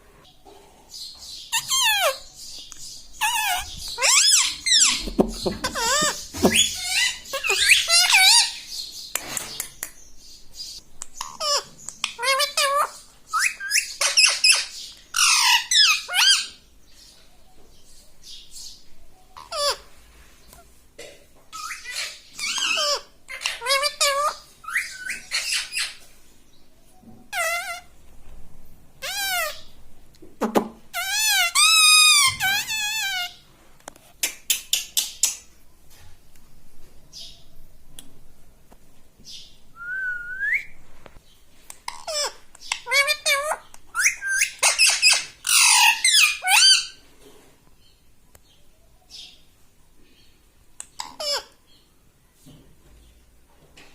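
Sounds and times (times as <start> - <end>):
parrot squawking: 1.5 - 2.2, 3.2 - 8.6, 11.2 - 16.6, 21.5 - 26.0, 27.3 - 27.9, 29.0 - 29.7, 30.9 - 33.4, 41.9 - 47.0, 51.0 - 51.6.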